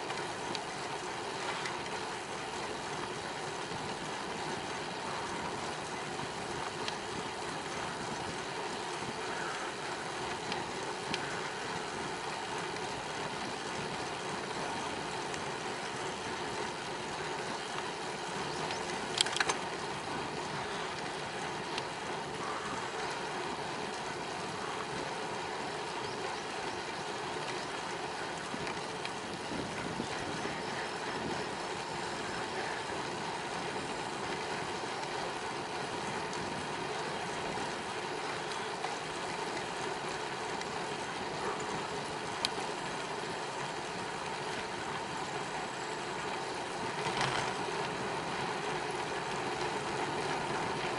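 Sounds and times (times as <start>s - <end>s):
bicycle tyres rolling on pavement: 0.0s - 50.9s
sharp clicks: 19.1s - 19.6s.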